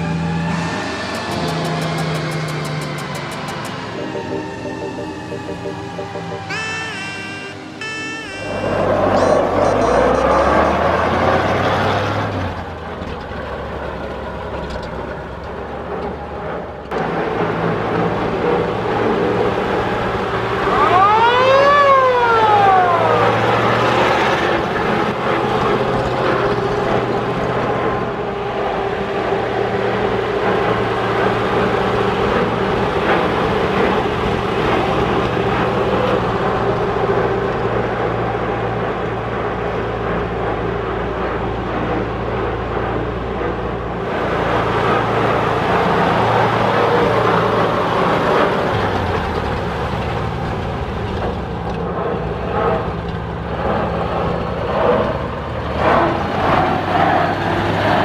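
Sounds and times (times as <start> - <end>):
mechanical siren winding down: 0.0 - 12.0, 19.8 - 24.6
fire truck engine driving: 0.0 - 58.0.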